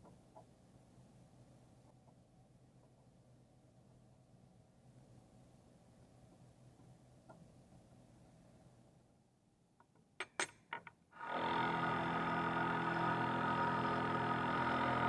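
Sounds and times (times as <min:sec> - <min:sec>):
machine tool motor humming: 0:11.2 - 0:15.0.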